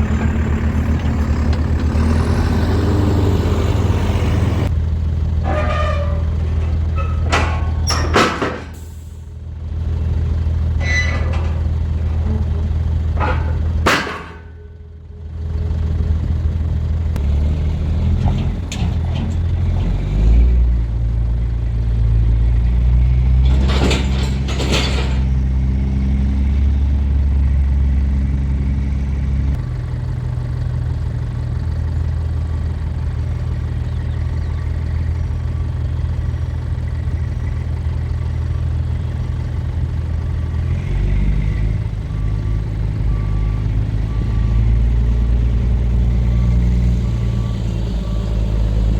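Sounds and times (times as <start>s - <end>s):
metal clanks and squeaks: 0.0s - 4.7s, 5.4s - 9.2s, 10.7s - 15.1s, 17.9s - 20.6s, 23.1s - 25.5s
diesel engine running: 0.0s - 48.9s.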